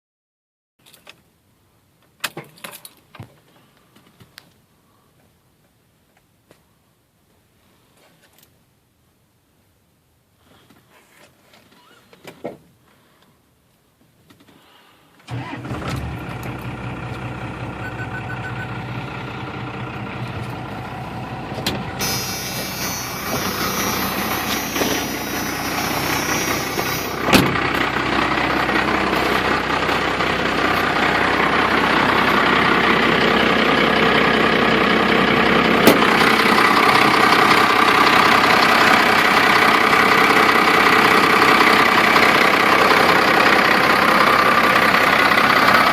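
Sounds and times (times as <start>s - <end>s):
diesel engine starting and idling: 15.3s - 45.9s
high hiss: 22.0s - 27.2s.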